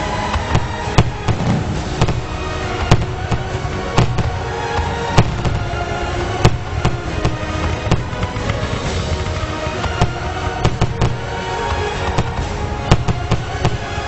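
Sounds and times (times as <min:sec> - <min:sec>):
fireworks bangs: 0:00.0 - 0:14.0
fireworks popping: 0:00.0 - 0:14.0
music: 0:00.0 - 0:14.0.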